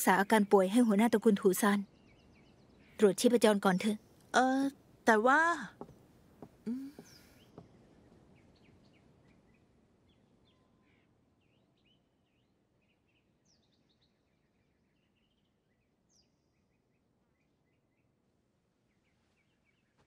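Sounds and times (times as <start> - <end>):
faint birds chirping: 0.0 - 20.0.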